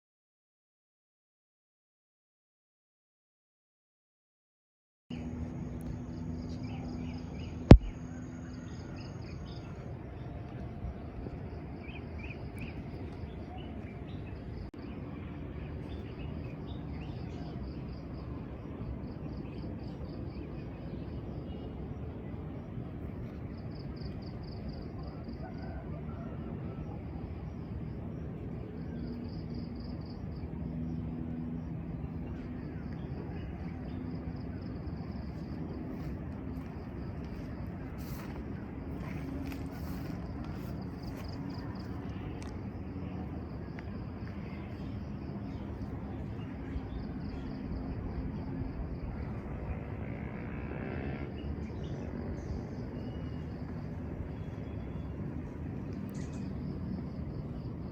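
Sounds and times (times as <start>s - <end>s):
insects chirring: 27.4s - 57.9s.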